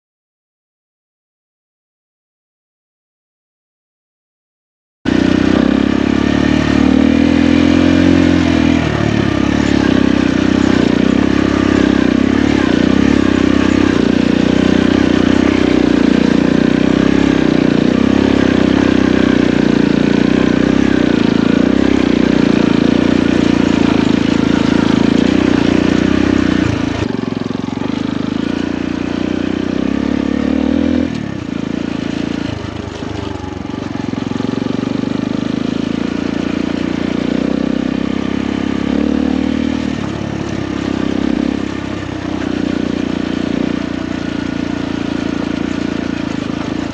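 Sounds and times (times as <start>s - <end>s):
motorcycle engine running: 5.1s - 46.9s.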